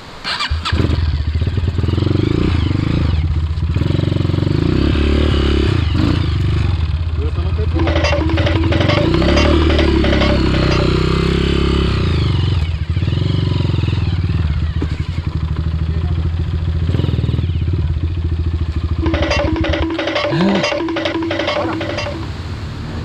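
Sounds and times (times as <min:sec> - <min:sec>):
motorcycle engine running: 0:06.9 - 0:10.9, 0:14.8 - 0:22.2
background music with a beat: 0:07.8 - 0:11.1, 0:19.0 - 0:22.3.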